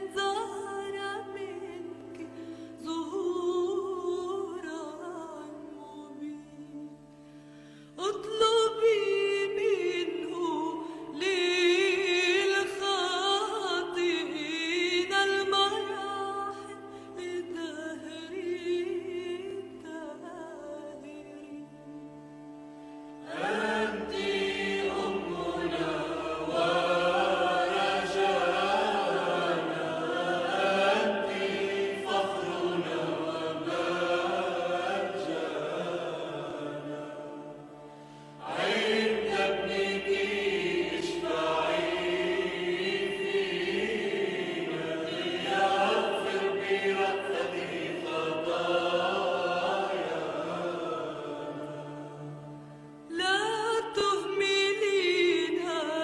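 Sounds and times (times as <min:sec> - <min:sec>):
sustained accompaniment: 0:00.0 - 0:56.0
choir chanting a hymn: 0:23.2 - 0:56.0.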